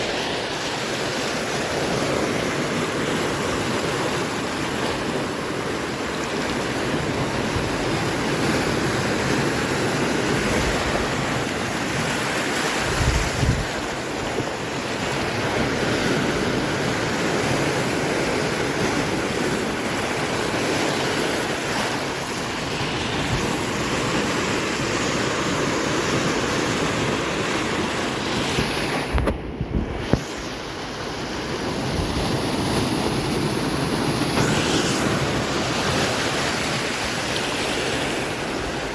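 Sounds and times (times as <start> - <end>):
waves breaking on shore: 0.0 - 38.9
wind thumps on microphone: 12.8 - 13.8, 28.5 - 30.6.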